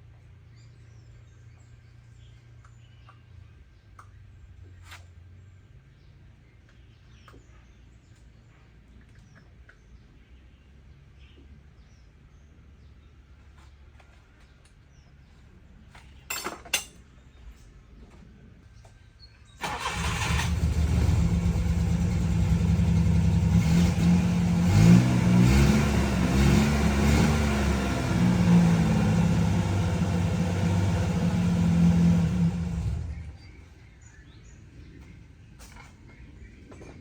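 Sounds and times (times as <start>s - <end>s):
truck engine starting and revving: 19.6s - 33.6s.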